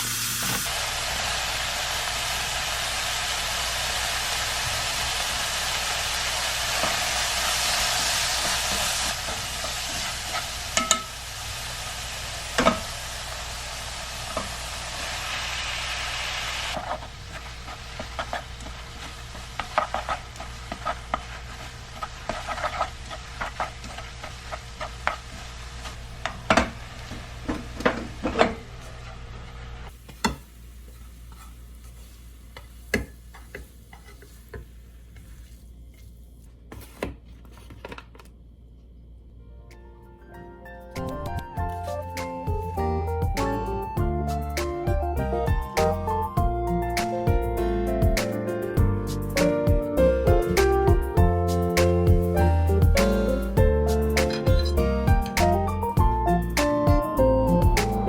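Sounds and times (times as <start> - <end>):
food sizzling in a frying pan: 0.0 - 29.1, 29.8 - 36.0.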